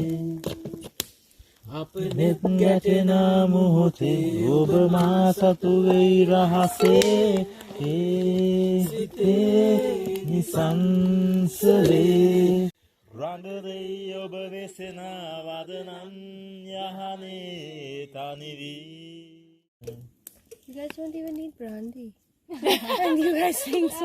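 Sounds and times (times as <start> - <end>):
people singing together: 0.0 - 0.8, 1.7 - 19.2.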